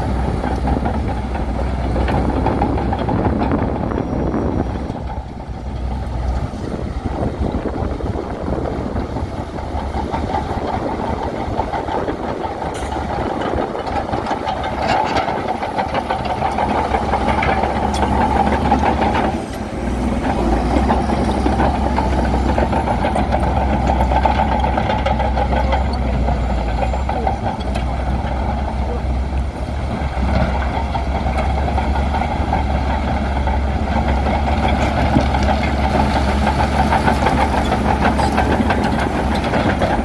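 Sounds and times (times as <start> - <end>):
bulldozer diesel engine running: 0.0 - 40.0
short metallic clanks: 12.7 - 13.3.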